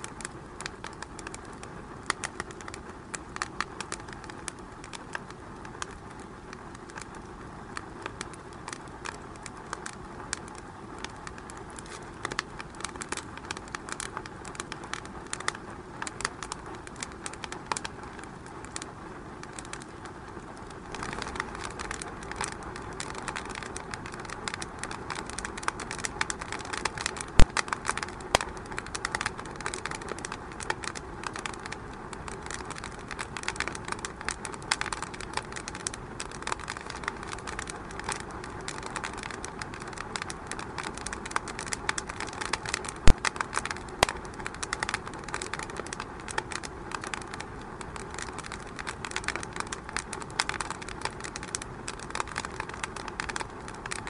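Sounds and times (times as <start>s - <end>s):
wood fire crackling: 0.0s - 54.0s
sharp loud fire pops: 27.4s - 27.6s, 43.1s - 43.3s.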